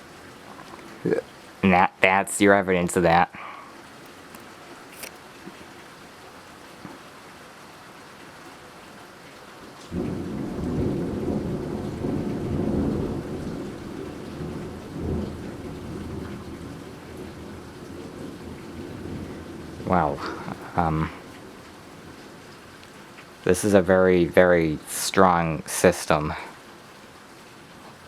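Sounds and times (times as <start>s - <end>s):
heavy rain falling: 0.0s - 28.0s
thunder rumbling: 9.9s - 22.2s.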